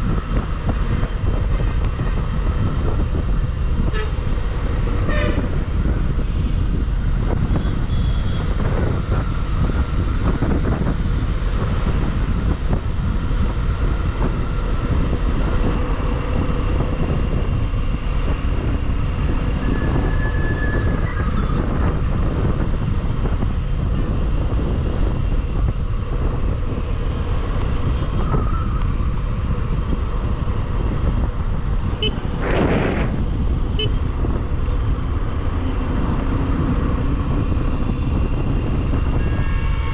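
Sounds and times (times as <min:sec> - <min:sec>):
wind rush: 0:00.0 - 0:39.9
vehicle horns: 0:03.8 - 0:04.3, 0:04.9 - 0:05.6, 0:07.4 - 0:08.7, 0:32.0 - 0:32.3, 0:33.7 - 0:34.0, 0:39.1 - 0:39.9.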